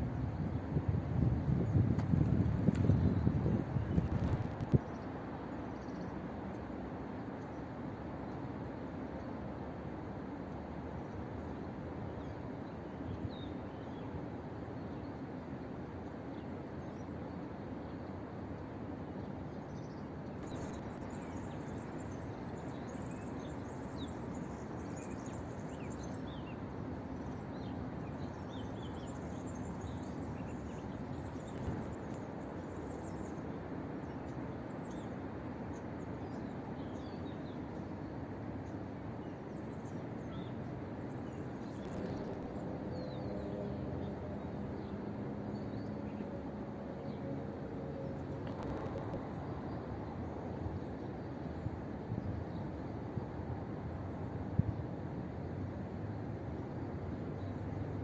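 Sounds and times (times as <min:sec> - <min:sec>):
outdoor background hiss: 0:00.0 - 0:58.0
small birds chirping: 0:02.5 - 0:06.2, 0:19.6 - 0:43.4
low hum with steady tones: 0:39.2 - 0:58.0.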